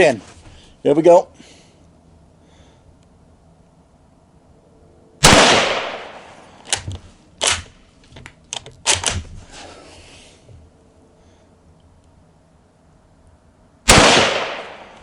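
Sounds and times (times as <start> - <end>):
rifle shot: 5.2 - 7.7, 13.9 - 15.0
metallic clacks of rifle bolt: 6.6 - 9.3.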